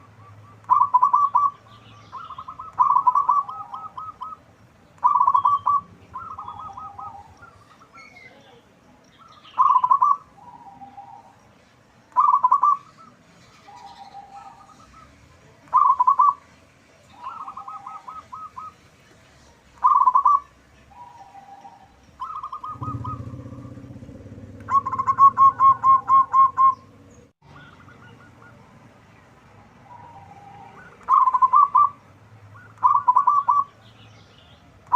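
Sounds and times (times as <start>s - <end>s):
dove cooing: 0.0s - 8.0s, 9.3s - 11.4s, 12.1s - 16.4s, 17.1s - 18.8s, 19.8s - 28.7s, 29.8s - 32.0s, 32.6s - 33.8s
low rumble: 22.6s - 27.4s.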